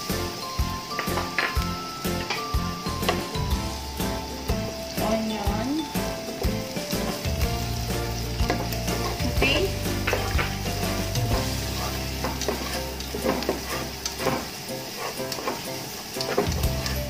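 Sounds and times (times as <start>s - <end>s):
onion sizzling in hot oil: 0.0s - 17.0s
spatula scraping a pot: 10.0s - 17.0s.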